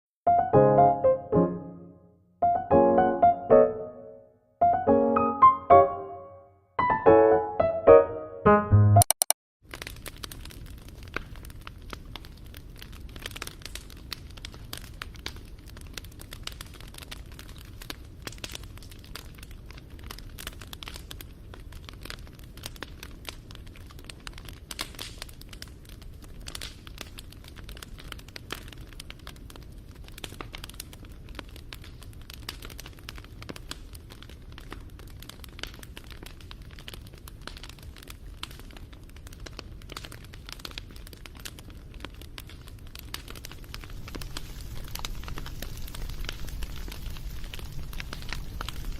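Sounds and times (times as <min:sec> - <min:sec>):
wood fire crackling and popping: 0:09.6 - 0:48.9.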